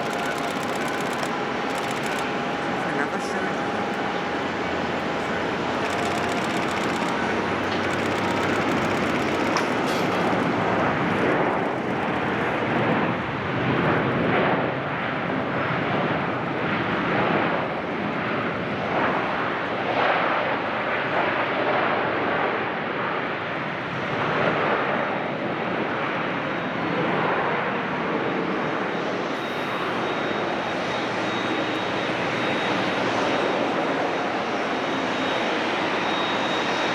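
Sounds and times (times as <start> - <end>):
jet engines rushing: 0.0 - 20.5.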